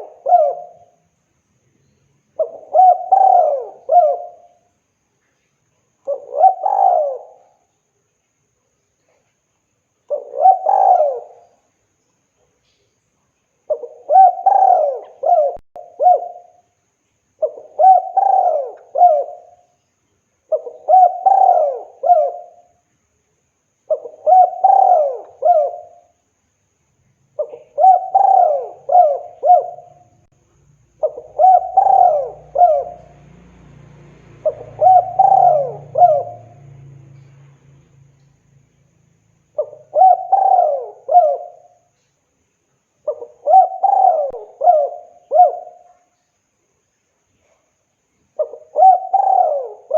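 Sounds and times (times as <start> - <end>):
dove cooing: 0.0 - 1.0, 2.4 - 4.7, 6.1 - 7.7, 10.1 - 11.6, 13.7 - 16.6, 17.4 - 19.7, 20.5 - 22.7, 23.9 - 26.2, 27.4 - 30.2, 30.9 - 37.2, 39.5 - 42.0, 43.0 - 46.1, 48.4 - 49.9.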